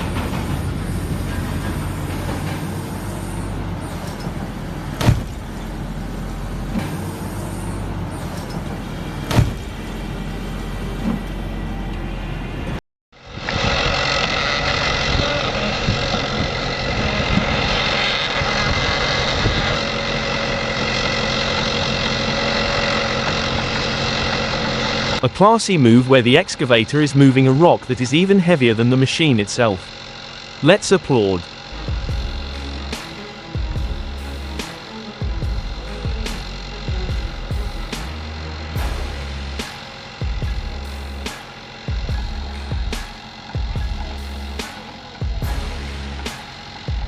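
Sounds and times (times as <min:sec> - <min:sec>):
engine whine: 0:00.0 - 0:47.0
heavy machinery engine running: 0:00.0 - 0:47.0
sharp knocks: 0:05.0 - 0:05.4.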